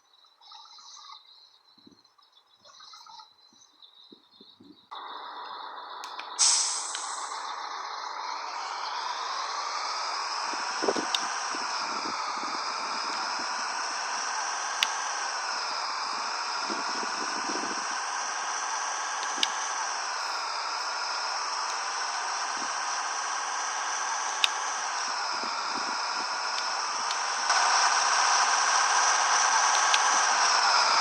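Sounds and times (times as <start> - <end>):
truck road and wind noise: 4.0 - 31.0
sharp clicks: 5.4 - 11.5, 13.9 - 15.4, 19.1 - 20.4, 24.2 - 25.1, 26.5 - 30.7.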